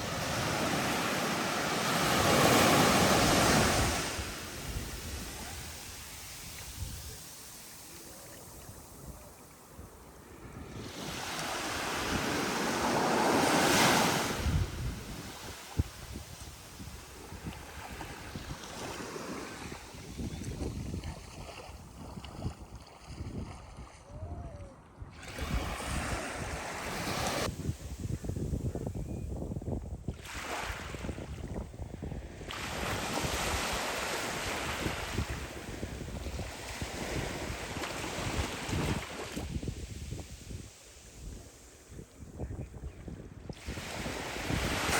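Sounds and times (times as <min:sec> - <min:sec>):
sea wave breaking on shore: 0:00.0 - 0:08.6, 0:10.7 - 0:20.0
waves breaking on sand: 0:00.0 - 0:23.6, 0:25.2 - 0:28.2, 0:32.4 - 0:41.8, 0:43.6 - 0:44.9
wind buffeting microphone: 0:00.0 - 0:44.9.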